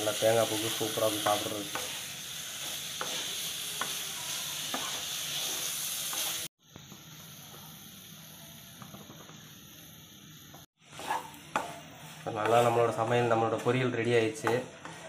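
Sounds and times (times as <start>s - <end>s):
vegetables sizzling: 0.0s - 15.0s
spatula scraping and stirring: 0.2s - 6.5s, 10.8s - 15.0s.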